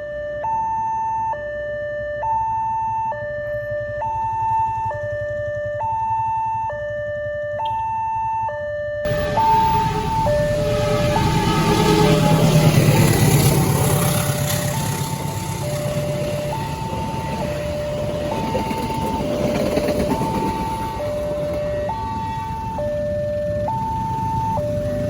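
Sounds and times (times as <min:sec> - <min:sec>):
two-tone crossing alarm: 0:00.0 - 0:25.0
train rumble: 0:09.1 - 0:25.0.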